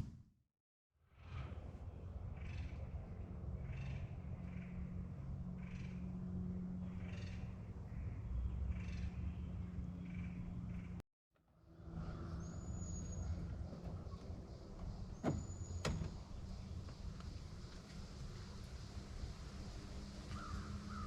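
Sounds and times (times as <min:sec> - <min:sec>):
steady low hum: 0:01.2 - 0:11.0.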